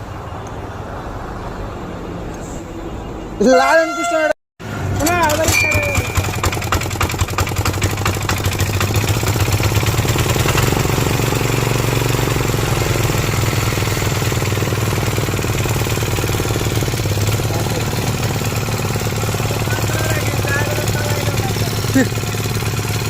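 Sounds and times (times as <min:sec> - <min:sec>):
small engine running: 0:05.0 - 0:23.0.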